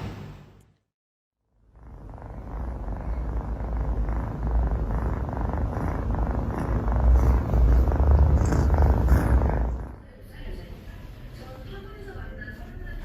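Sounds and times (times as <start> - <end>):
cat purring: 1.6 - 11.0.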